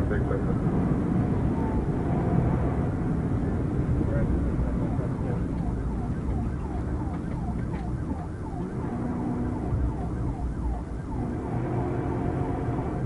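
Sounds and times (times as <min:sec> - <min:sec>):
car engine rumble and road noise: 0:00.0 - 0:13.0
police siren yelping: 0:01.2 - 0:02.0, 0:04.6 - 0:13.0.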